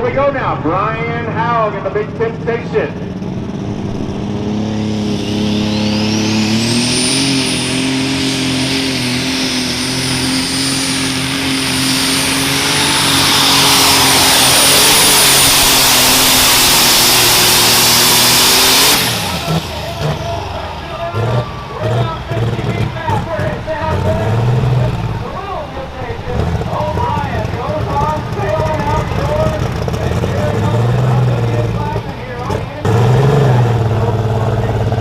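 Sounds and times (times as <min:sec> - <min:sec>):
tractor engine under full load: 0:00.0 - 0:35.0
high turbo whistle: 0:04.6 - 0:22.5.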